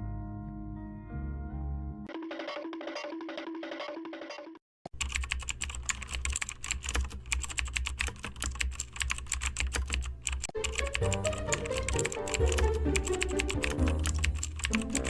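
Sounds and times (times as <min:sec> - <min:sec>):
keyboard typing: 0:02.1 - 0:15.0.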